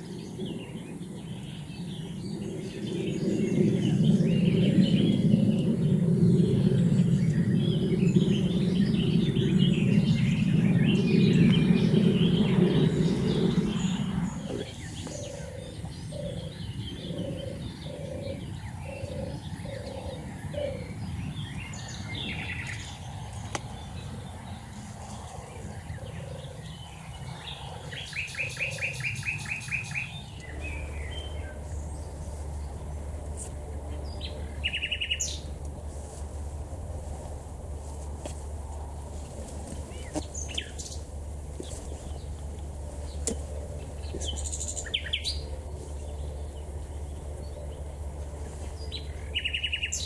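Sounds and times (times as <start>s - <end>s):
songbird chirps: 0.0s - 50.0s
loud low rumble: 1.8s - 14.9s, 30.4s - 50.0s
dove purring: 2.5s - 21.0s, 24.1s - 29.2s.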